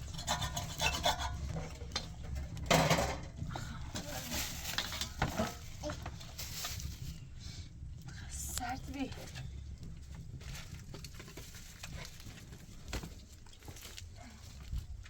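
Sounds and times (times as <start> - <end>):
utensils and cookware clinking: 0.0 - 3.3, 4.0 - 6.0
scraping rustle: 4.0 - 7.3.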